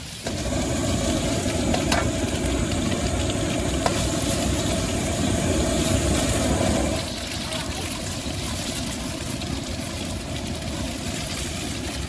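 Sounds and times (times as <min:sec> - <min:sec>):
gas burner roaring: 0:00.0 - 0:12.0.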